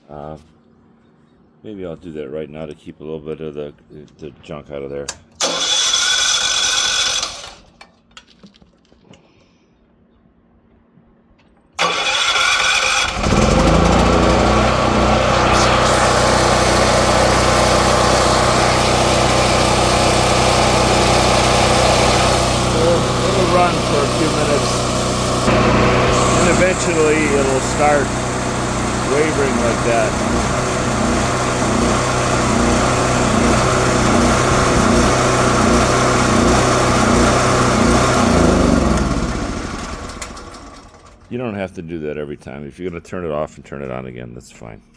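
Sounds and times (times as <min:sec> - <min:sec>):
generator engine cranking and running: 0:05.4 - 0:07.9, 0:11.8 - 0:41.3.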